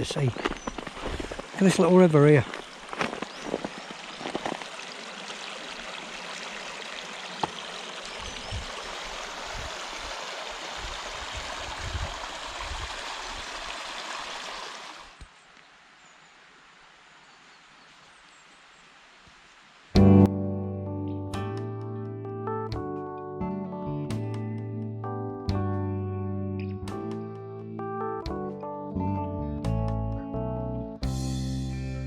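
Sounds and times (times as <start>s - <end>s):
river rushing over stones: 0.9s - 15.2s.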